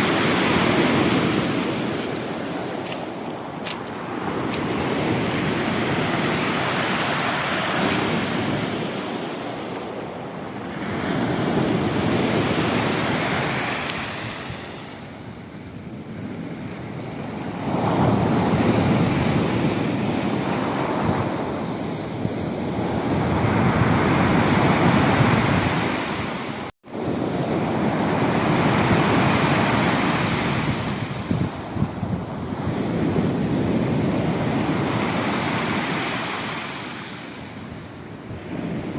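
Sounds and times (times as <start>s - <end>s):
waves breaking: 0.0s - 15.5s.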